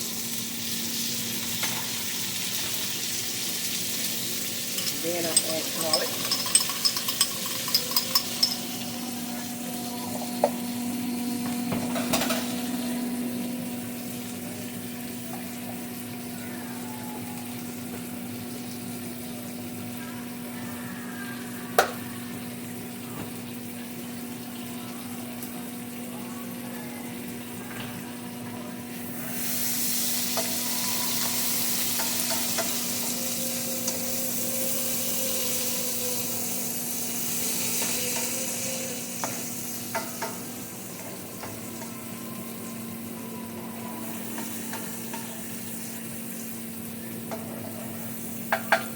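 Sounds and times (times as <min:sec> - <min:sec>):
vegetables sizzling in a frying pan: 0:00.0 - 0:06.8, 0:17.4 - 0:28.2, 0:28.8 - 0:48.9
utensil clinking against pan: 0:04.7 - 0:08.8.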